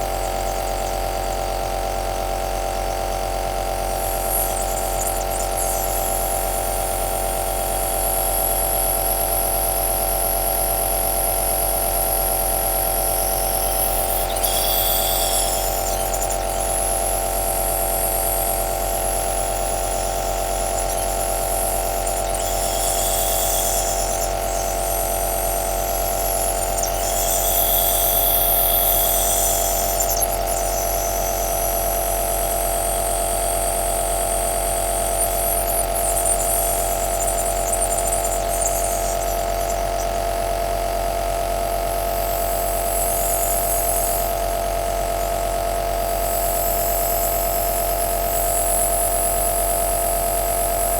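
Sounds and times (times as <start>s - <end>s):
nebulizer motor humming with air hiss: 0.0s - 50.9s.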